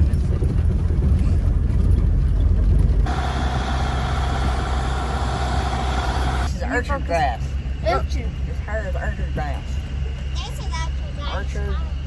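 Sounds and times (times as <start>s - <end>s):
tractor engine running: 0.0s - 6.5s.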